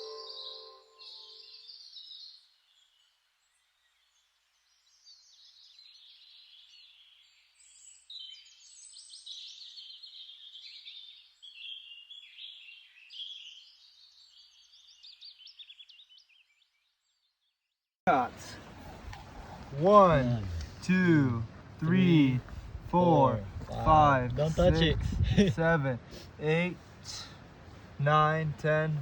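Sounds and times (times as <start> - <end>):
birds chirping and trilling: 0.0 - 3.1, 4.0 - 17.5.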